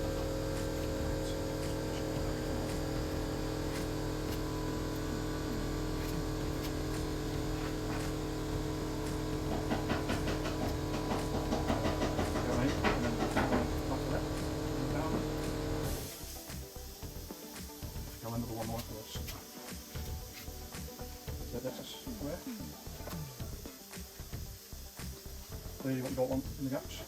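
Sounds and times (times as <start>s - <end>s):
spreader scraping body filler: 0.0s - 16.0s
electrical hum: 0.0s - 27.0s.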